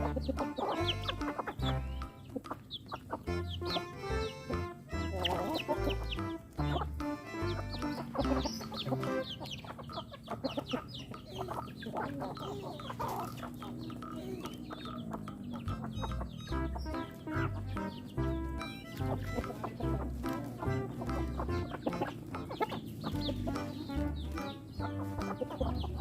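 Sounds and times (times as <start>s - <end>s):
background music with low bass: 0.0s - 2.5s, 3.2s - 9.7s, 15.4s - 26.0s
chickens clucking: 0.0s - 26.0s.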